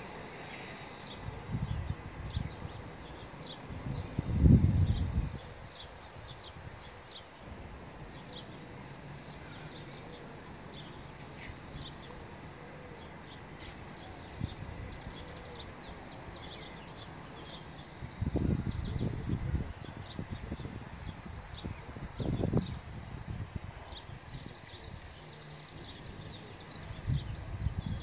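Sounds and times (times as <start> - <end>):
small birds chirping: 9.2 - 28.0.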